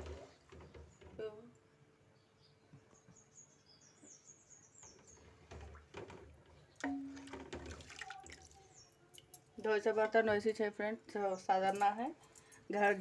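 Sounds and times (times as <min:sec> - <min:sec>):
small bird chirping: 0:02.2 - 0:05.4, 0:08.4 - 0:09.3.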